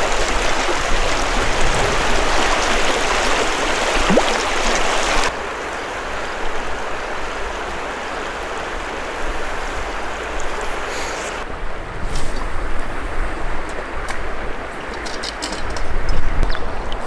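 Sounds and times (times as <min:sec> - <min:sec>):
river rushing: 0:00.0 - 0:11.6.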